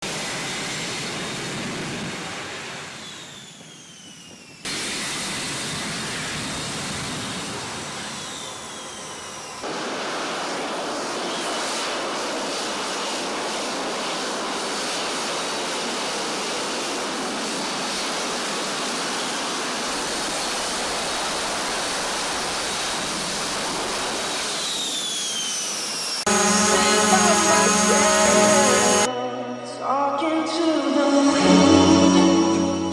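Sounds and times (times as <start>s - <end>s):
fighter jet engines roaring: 4.7s - 29.1s
high engine whines: 19.9s - 29.1s.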